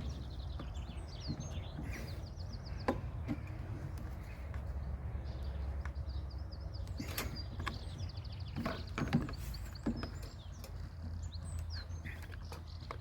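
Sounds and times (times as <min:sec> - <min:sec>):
small birds chirping: 0:00.0 - 0:13.0
lawnmower parts clicking and knocking: 0:02.8 - 0:04.7, 0:06.9 - 0:13.0.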